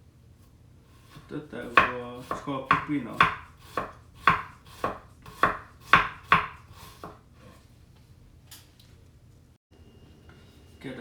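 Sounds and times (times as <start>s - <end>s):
knife chopping on cutting board: 1.0s - 7.2s.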